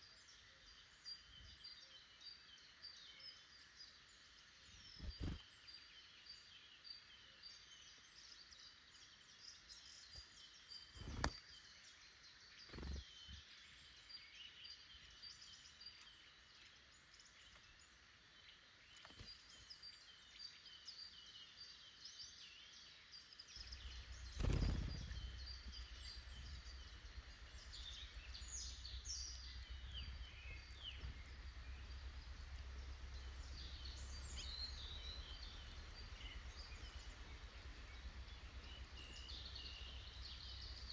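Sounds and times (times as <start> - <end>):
woodland birds chirping: 0.0 - 40.9
low steady rumble: 4.8 - 5.4, 23.5 - 40.9.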